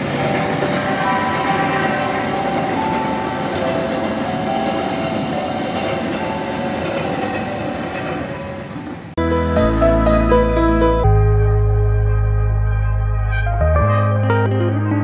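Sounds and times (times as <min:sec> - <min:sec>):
train wheels rumbling on rail: 0:00.0 - 0:09.2
steady high tones: 0:09.2 - 0:14.8
music: 0:09.2 - 0:15.0.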